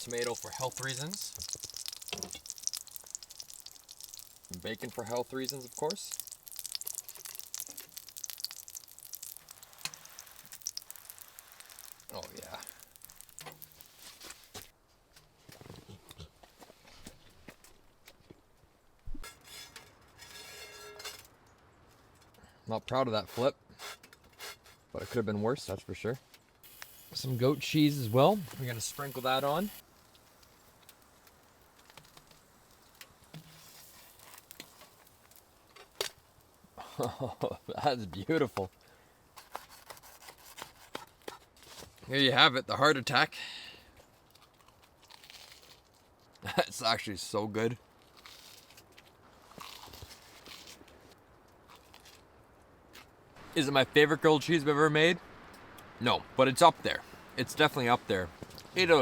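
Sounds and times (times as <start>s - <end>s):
sandwich sizzling in a pan: 0.0s - 14.7s, 26.6s - 37.8s.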